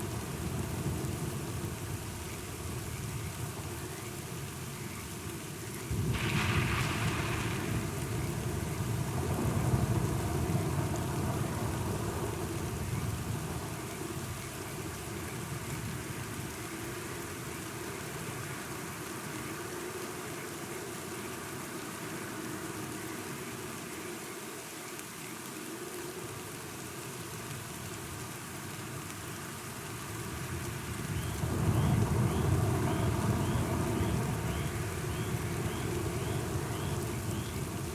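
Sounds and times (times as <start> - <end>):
steady rainfall: 0.0 - 37.9
thunder rumbling: 5.9 - 13.7, 30.5 - 37.9.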